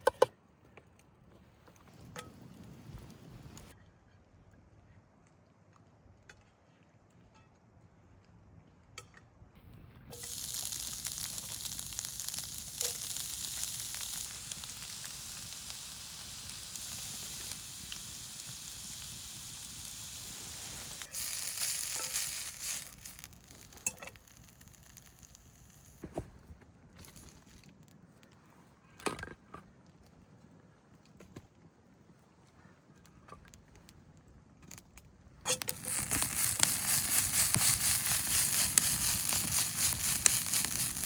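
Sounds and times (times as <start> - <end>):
chicken sizzling: 1.8 - 3.8, 9.6 - 27.6, 35.5 - 41.0
ticks and clicks: 9.6 - 26.0, 35.5 - 41.0.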